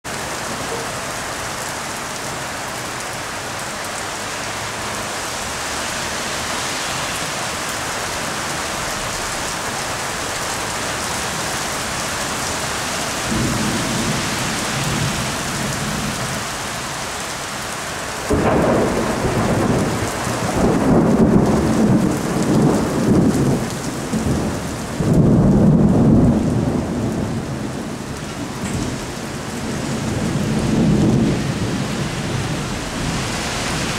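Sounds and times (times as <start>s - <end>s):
rain falling: 0.0s - 33.9s
thunder rumbling: 13.2s - 16.4s, 18.3s - 33.9s.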